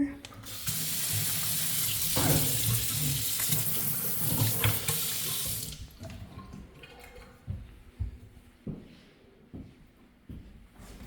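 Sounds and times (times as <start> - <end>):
water splashing into sink: 0.3 - 7.4
kitchen faucet running: 0.4 - 6.2.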